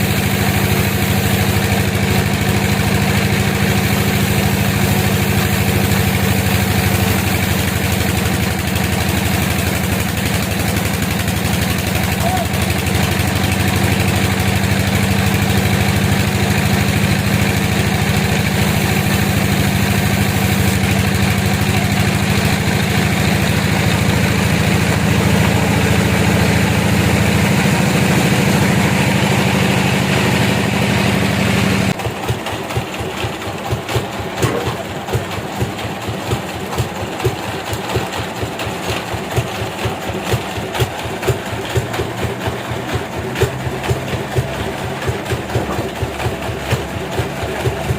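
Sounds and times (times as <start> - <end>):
sawmill engine running: 0.0 - 47.9.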